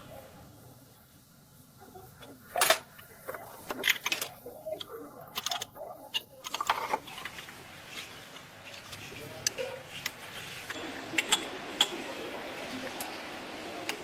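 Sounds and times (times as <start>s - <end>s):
mechanical clicks and clinks: 5.3s - 7.0s.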